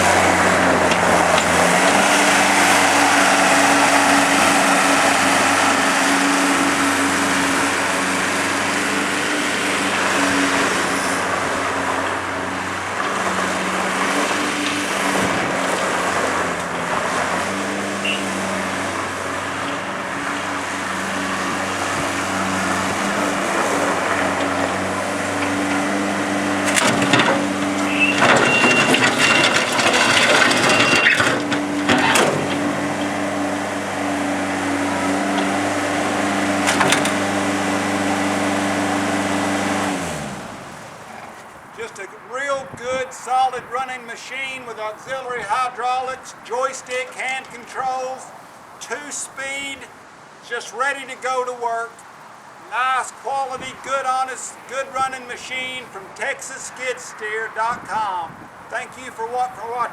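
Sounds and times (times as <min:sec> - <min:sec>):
clattering metal knocks: 0:00.0 - 0:04.6, 0:18.6 - 0:33.6, 0:36.5 - 0:37.3
loader diesel engine running: 0:00.0 - 0:50.0.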